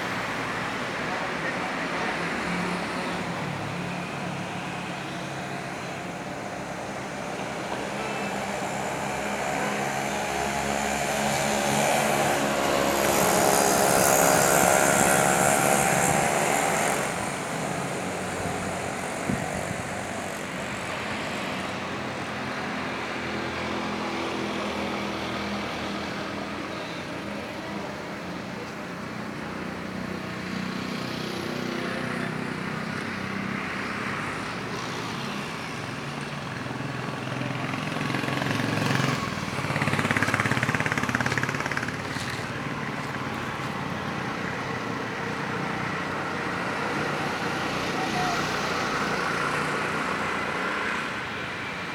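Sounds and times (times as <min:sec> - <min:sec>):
motor engine passing by: 0:06.8 - 0:21.8, 0:37.2 - 0:51.3.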